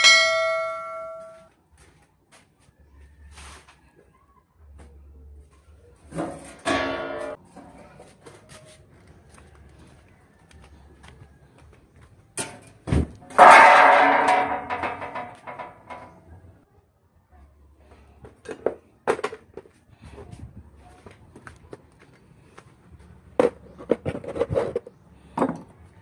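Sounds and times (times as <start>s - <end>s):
metal clanging: 0.0s - 1.5s, 6.2s - 7.8s, 12.4s - 16.6s.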